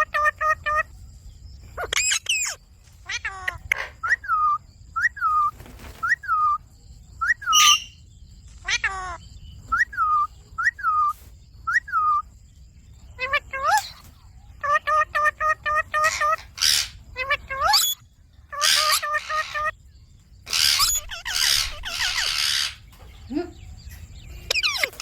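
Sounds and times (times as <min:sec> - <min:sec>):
parakeet whistled calls: 0:01.8 - 0:02.6, 0:07.2 - 0:08.0, 0:08.6 - 0:12.3, 0:14.6 - 0:19.7, 0:20.5 - 0:22.9, 0:24.5 - 0:25.0.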